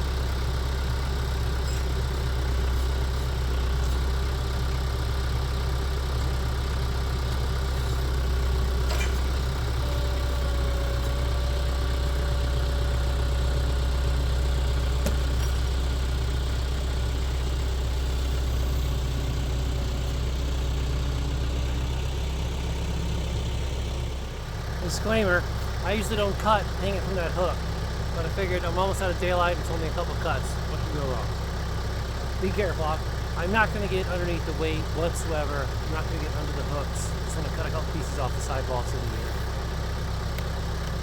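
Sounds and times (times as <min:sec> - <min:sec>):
engine droning steadily: 0:00.0 - 0:41.0.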